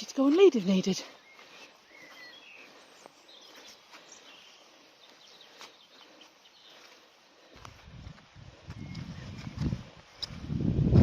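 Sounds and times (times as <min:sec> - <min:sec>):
faint bird chirps: 0:01.0 - 0:07.1.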